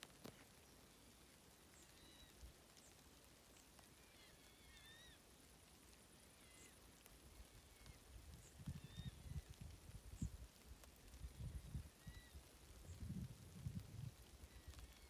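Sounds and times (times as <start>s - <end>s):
faint bird chirps: 0.3s - 10.4s, 11.2s - 13.2s, 14.3s - 15.0s.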